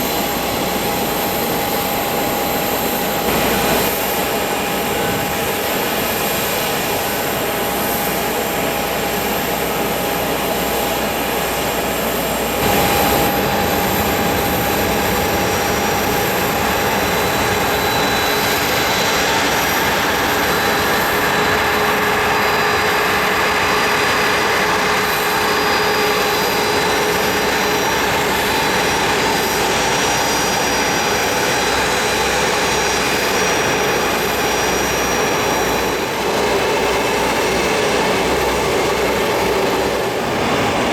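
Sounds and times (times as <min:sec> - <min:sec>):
jet engines roaring with whine: 0:00.0 - 0:40.9.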